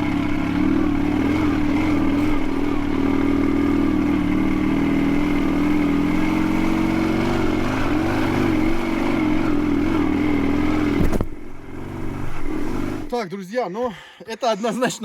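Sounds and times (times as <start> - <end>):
motorcycle engine revving under load: 0.0 - 13.1.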